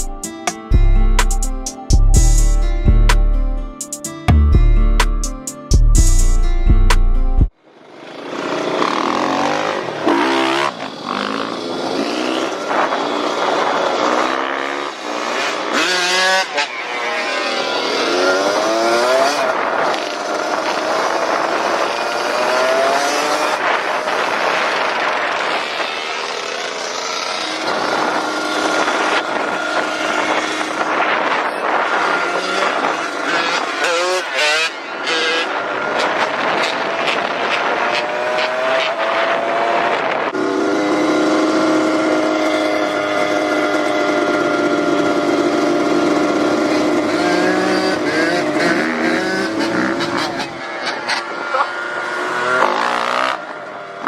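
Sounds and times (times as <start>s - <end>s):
dirt bike engine running: 7.8s - 16.5s, 23.6s - 50.6s.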